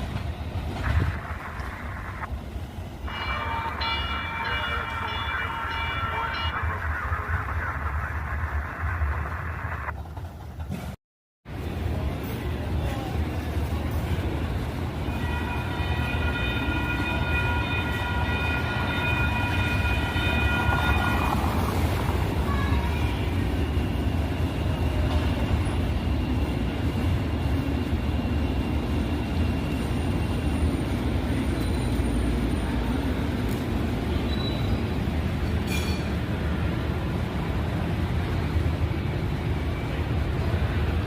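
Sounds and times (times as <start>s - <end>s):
light rail train rumbling: 0.0s - 41.0s
train horn: 3.1s - 6.6s, 15.0s - 21.7s.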